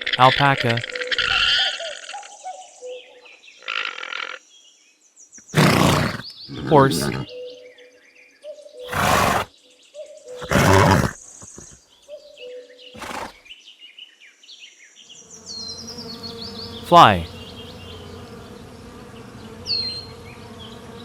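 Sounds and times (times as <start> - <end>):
fly buzzing: 5.4 - 7.3, 8.9 - 9.5, 10.4 - 11.8, 13.0 - 13.4, 15.2 - 21.0
horse snorting: 5.4 - 7.3, 8.9 - 9.5, 10.4 - 11.8, 13.0 - 13.4.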